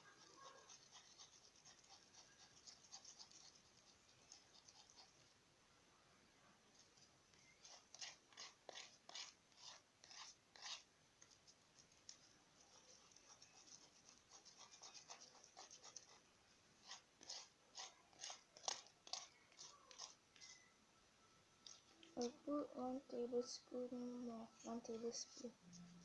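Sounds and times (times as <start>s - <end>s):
spoon scraping a paper plate: 0.0s - 5.3s, 6.7s - 16.2s, 16.8s - 20.7s.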